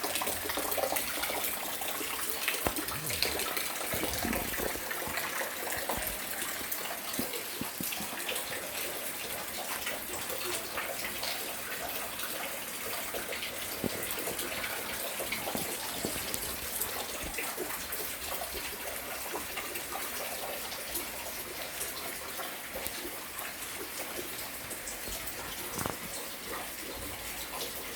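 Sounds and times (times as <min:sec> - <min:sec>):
steady rain falling: 0:00.0 - 0:27.9.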